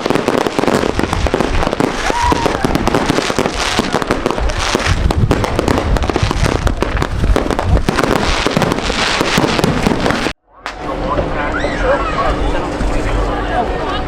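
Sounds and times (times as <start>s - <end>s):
firecrackers crackling and popping: 0.0s - 10.8s.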